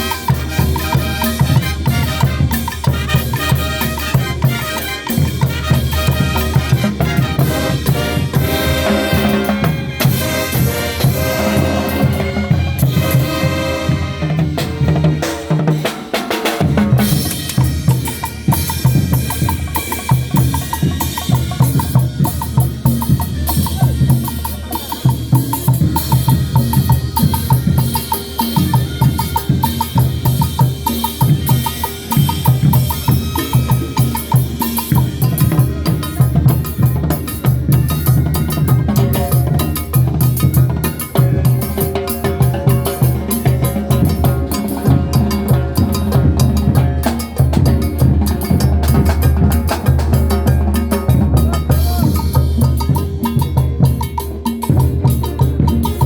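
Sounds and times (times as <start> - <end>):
drums beating steadily: 0.0 - 56.0
loud band music: 0.0 - 56.0.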